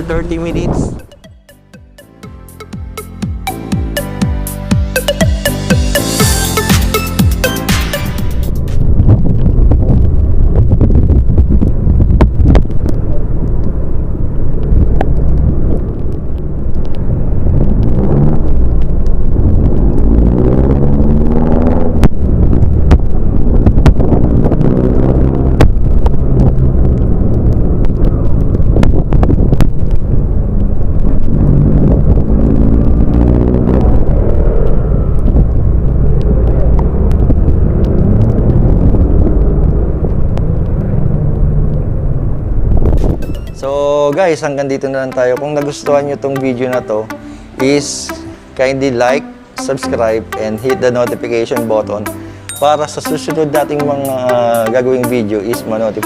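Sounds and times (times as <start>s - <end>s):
wind: 0.0s - 1.3s, 8.0s - 56.0s
road rumble: 0.0s - 56.0s
motorcycle engine accelerating: 17.3s - 43.4s.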